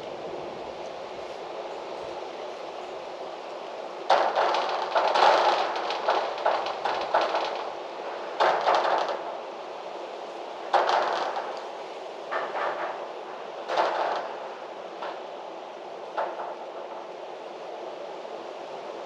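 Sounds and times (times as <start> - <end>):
gusting wind: 0.0 - 19.0
loose object rattling and knocking: 4.1 - 7.8, 8.4 - 9.4, 10.7 - 11.7.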